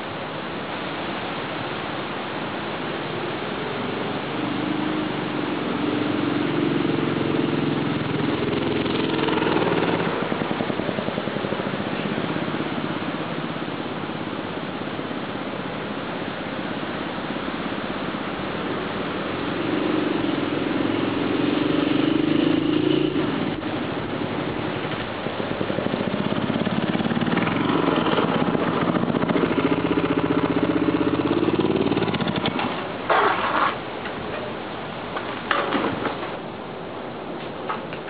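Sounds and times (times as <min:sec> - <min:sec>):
motorbike engine running: 0:25.4 - 0:33.6.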